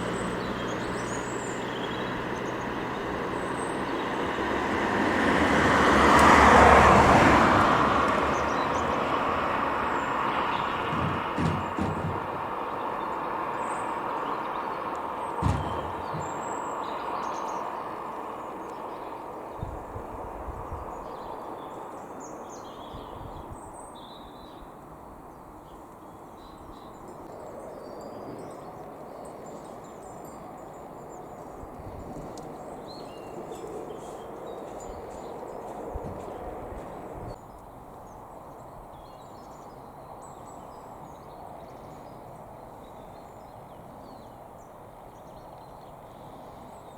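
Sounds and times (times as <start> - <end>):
small birds chirping: 0.0 - 4.6, 8.1 - 19.7
outdoor background noise: 0.0 - 46.9.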